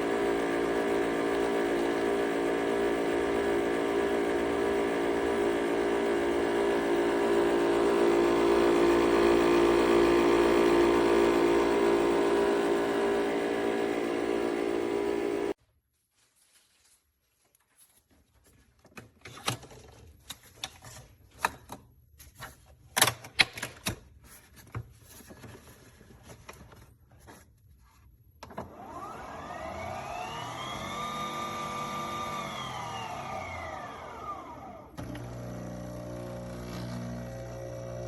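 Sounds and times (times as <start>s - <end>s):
coffee machine motor whine: 0.0s - 15.6s, 28.5s - 38.0s
steady hum: 0.0s - 15.6s.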